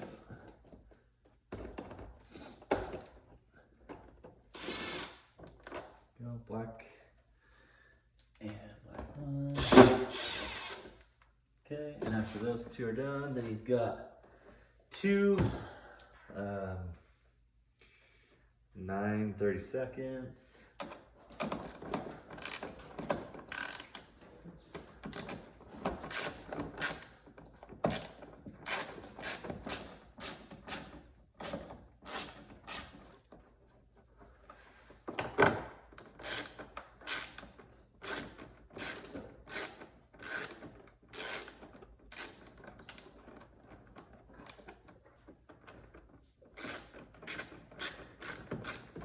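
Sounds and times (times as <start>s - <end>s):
ratchet wrench clicking: 36.2s - 43.0s, 46.6s - 49.0s.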